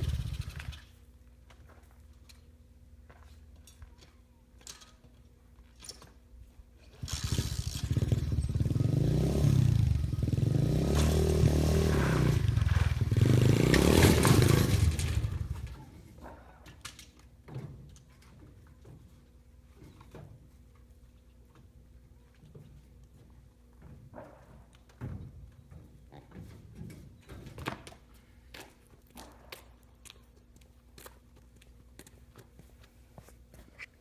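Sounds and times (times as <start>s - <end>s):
small motorbike engine revving: 0.0s - 0.9s, 7.0s - 15.8s.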